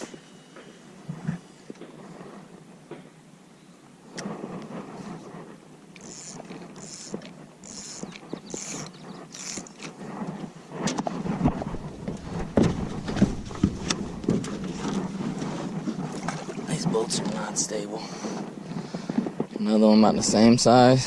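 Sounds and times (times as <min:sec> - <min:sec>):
scratchy strokes: 0:04.3 - 0:11.8
knocks and thumps in boat: 0:09.8 - 0:19.6.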